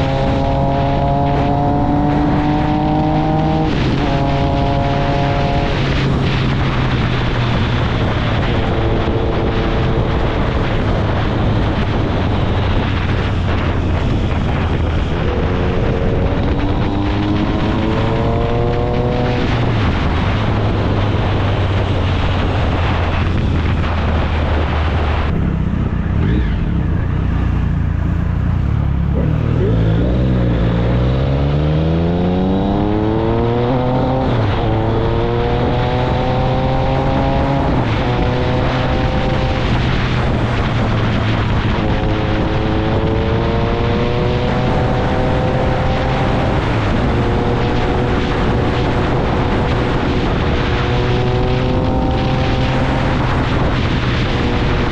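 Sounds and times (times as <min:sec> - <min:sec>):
motorcycle engine accelerating: 0:00.0 - 0:54.9
wind on microphone: 0:00.0 - 0:54.9.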